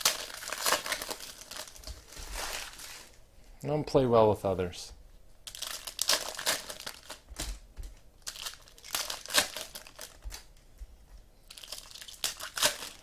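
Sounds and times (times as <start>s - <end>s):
pack wrappers crinkling: 0.0s - 3.3s, 5.4s - 10.6s, 11.5s - 13.0s.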